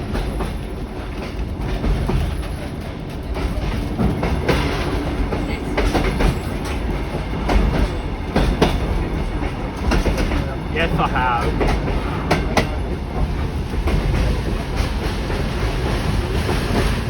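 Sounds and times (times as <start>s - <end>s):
wheels clicking on rails: 0.0s - 10.7s
train carriage rumble: 0.0s - 17.0s.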